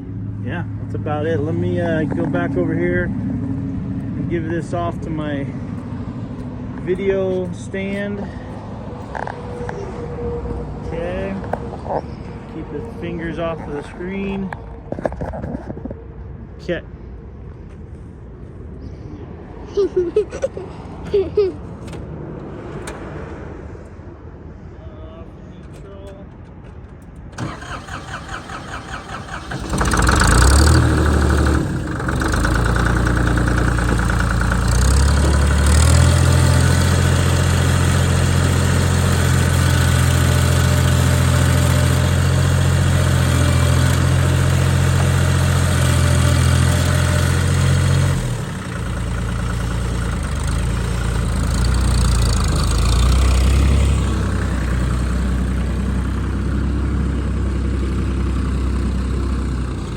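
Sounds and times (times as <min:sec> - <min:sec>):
diesel tractor engine running: 0:00.0 - 0:15.0, 0:27.0 - 0:59.9
tractor engine cranking: 0:26.0 - 0:59.9.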